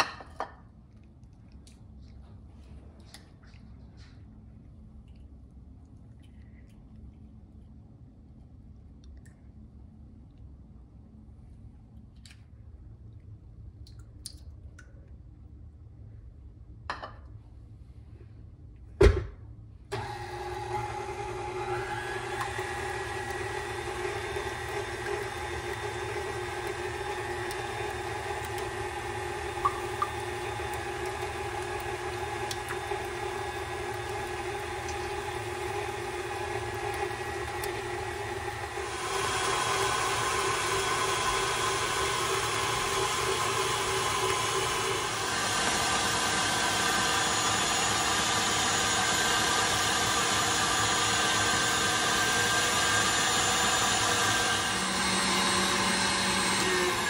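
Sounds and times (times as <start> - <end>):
stand mixer motor hum: 19.9 - 57.0
whisk beating in bowl: 20.9 - 49.2.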